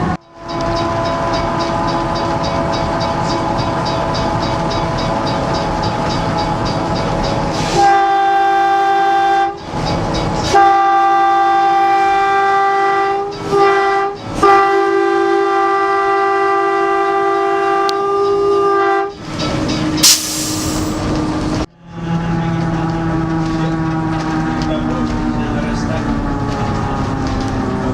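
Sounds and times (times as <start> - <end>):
train running noise: 0.0 - 27.9
steam locomotive whistle blasts: 7.6 - 9.6, 10.5 - 19.2, 20.0 - 21.0
sharp steam hiss: 20.0 - 21.0.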